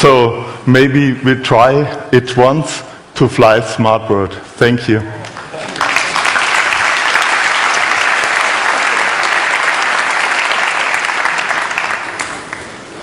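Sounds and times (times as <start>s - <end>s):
audience applauding: 5.3s - 12.9s.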